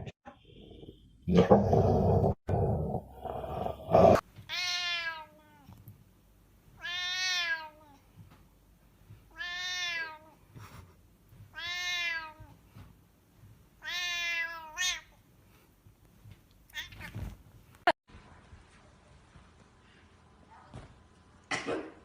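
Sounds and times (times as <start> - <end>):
cat meowing: 4.5 - 5.8, 6.8 - 8.0, 9.3 - 10.4, 13.8 - 15.1.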